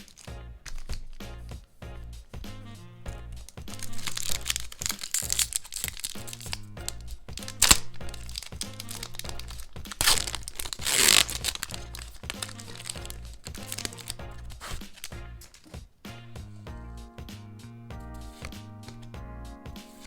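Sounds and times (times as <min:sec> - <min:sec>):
packaging crinkling and tearing: 0:00.0 - 0:01.2, 0:03.5 - 0:15.8
sharp crack: 0:00.0 - 0:01.6, 0:03.4 - 0:16.4
background music: 0:00.0 - 0:20.0.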